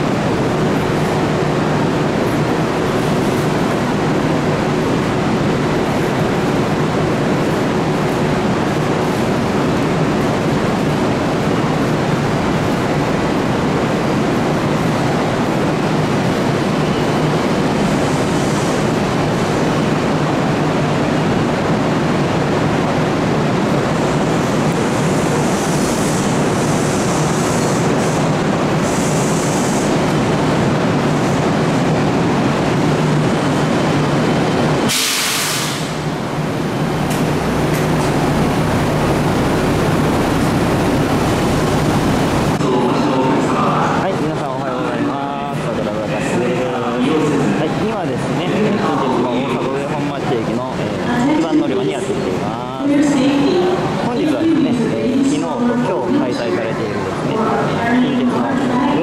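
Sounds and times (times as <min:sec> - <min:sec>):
electric train rumble and hum: 0:00.0 - 0:59.0
air hiss: 0:34.9 - 0:36.2.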